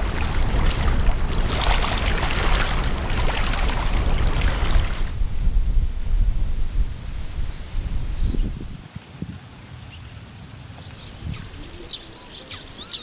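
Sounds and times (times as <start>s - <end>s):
water splashing and rushing: 0.0s - 8.9s
wind buffeting microphone: 0.0s - 9.4s, 10.9s - 13.0s.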